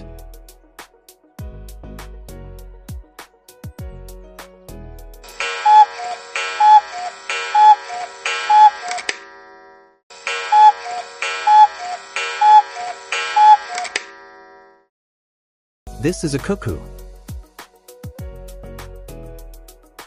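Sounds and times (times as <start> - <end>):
cuckoo calling: 5.4 - 9.1, 10.3 - 14.0.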